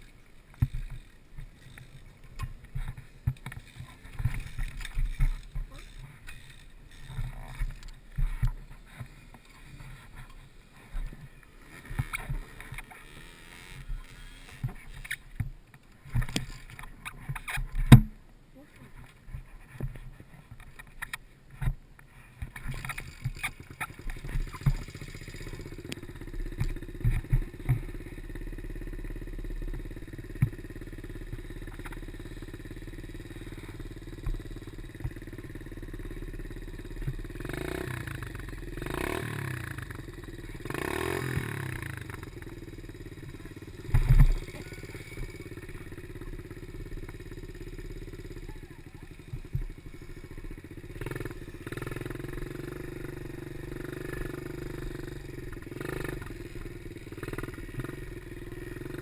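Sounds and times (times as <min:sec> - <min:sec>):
pit bike engine running: 0:00.0 - 0:18.2, 0:22.3 - 0:59.0.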